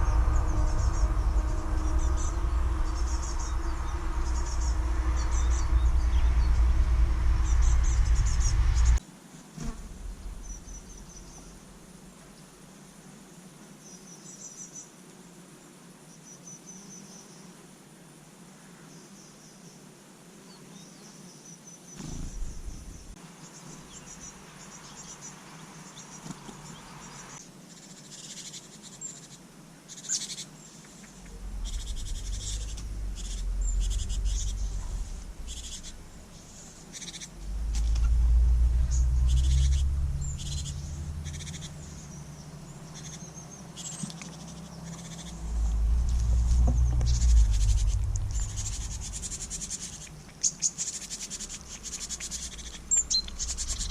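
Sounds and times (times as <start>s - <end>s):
low rumble: 0.0s - 9.0s, 9.6s - 12.1s, 22.0s - 23.2s, 31.1s - 50.4s, 52.3s - 53.9s
songbirds chirping: 0.0s - 9.0s, 20.5s - 53.9s
insect chirr: 0.0s - 53.9s.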